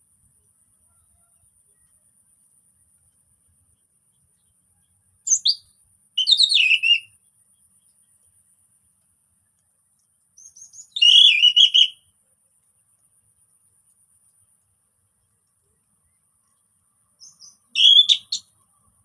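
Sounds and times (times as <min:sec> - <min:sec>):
bird singing warbled phrases: 0:05.2 - 0:07.2, 0:10.4 - 0:12.0, 0:17.1 - 0:18.6.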